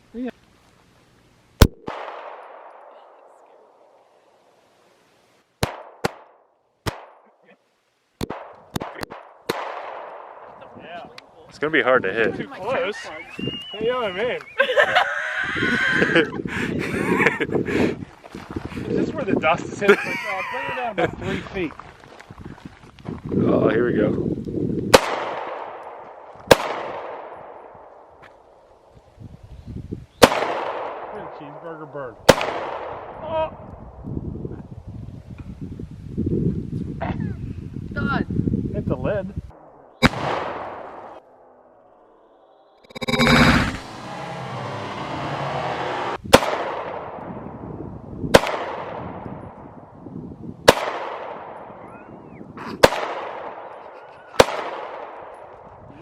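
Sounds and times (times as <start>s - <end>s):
pistol shots with echo: 1.6s - 2.9s, 8.2s - 10.4s, 24.9s - 27.8s, 30.2s - 31.3s, 32.3s - 33.2s, 39.6s - 41.2s, 46.3s - 47.3s, 48.3s - 49.2s, 50.7s - 51.7s, 52.8s - 53.7s, 54.4s - 55.5s.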